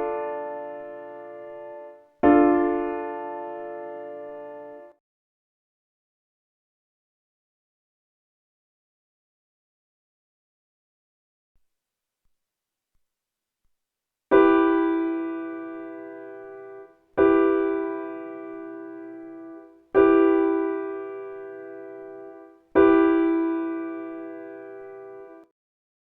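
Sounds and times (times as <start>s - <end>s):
piano-like keyboard chord: 0.0s - 5.0s, 14.4s - 25.5s.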